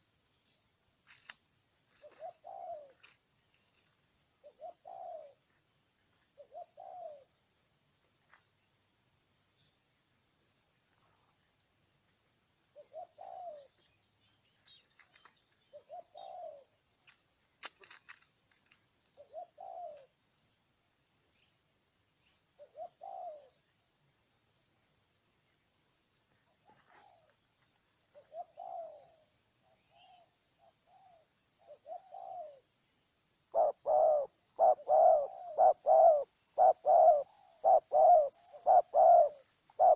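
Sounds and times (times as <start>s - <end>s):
dove cooing: 1.9s - 3.1s, 4.4s - 5.5s, 6.4s - 7.4s, 12.8s - 13.8s, 15.7s - 16.8s, 19.2s - 20.2s, 22.6s - 23.6s, 26.6s - 27.4s, 28.1s - 32.7s, 33.5s - 39.9s.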